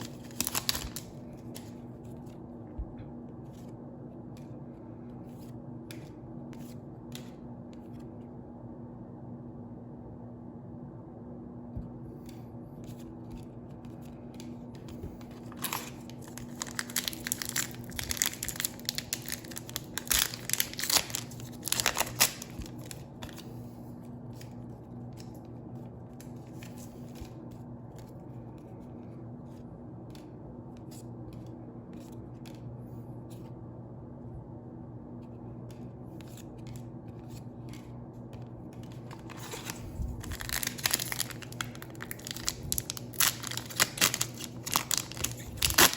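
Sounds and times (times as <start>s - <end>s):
foil wrappers tearing and crinkling: 0.0s - 1.2s, 15.4s - 23.4s, 38.8s - 45.9s
steady low hum: 0.0s - 45.9s.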